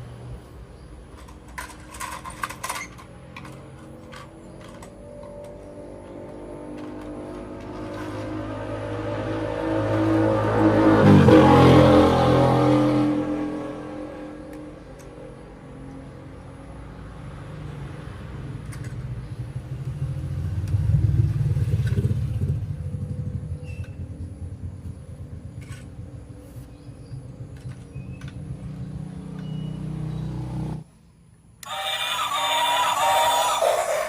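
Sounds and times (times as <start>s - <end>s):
toy train running on track: 31.6s - 34.0s.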